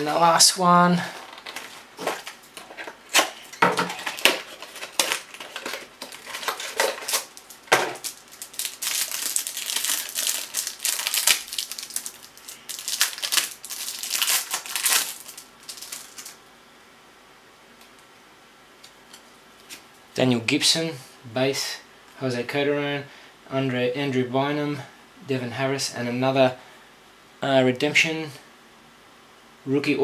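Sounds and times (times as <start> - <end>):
packaging crinkling: 1.0 - 16.4.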